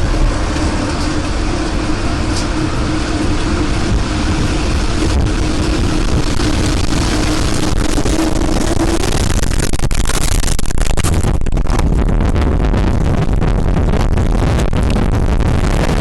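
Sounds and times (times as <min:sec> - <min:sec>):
crackling and buffeting: 0:00.0 - 0:16.0
steady hum: 0:00.0 - 0:16.0
wind roaring on microphone: 0:00.0 - 0:16.0.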